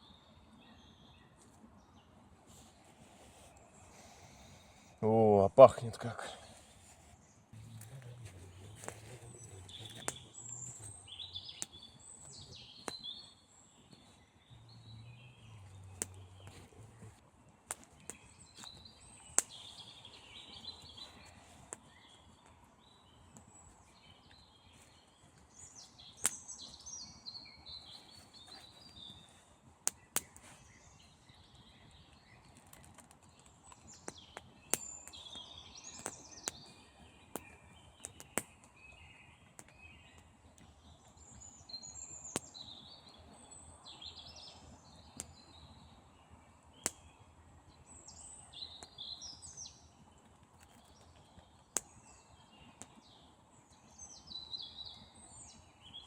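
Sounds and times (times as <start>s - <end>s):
campfire crackling and popping: 7.5s - 56.0s
high chirping calls: 7.6s - 17.2s.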